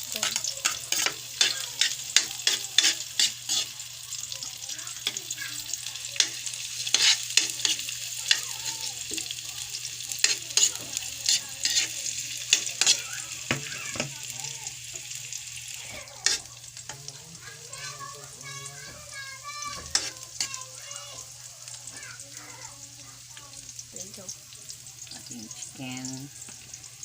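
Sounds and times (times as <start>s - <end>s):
spatula scraping a pan: 0.0s - 4.3s, 4.9s - 14.3s, 15.7s - 21.3s
garlic sizzling in hot oil: 0.0s - 27.0s.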